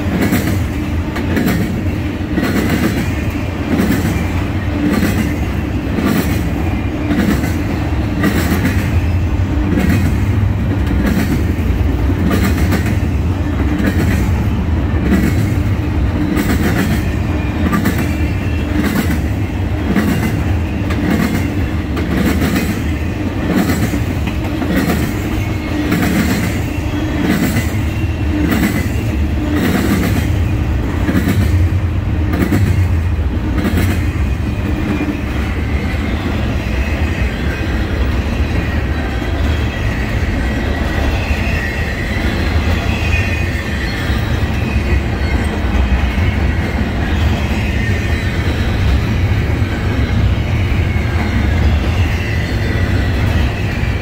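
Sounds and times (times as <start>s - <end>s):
freight train rumble: 0.0s - 54.0s
high wheel squeal: 15.8s - 31.0s, 33.6s - 54.0s.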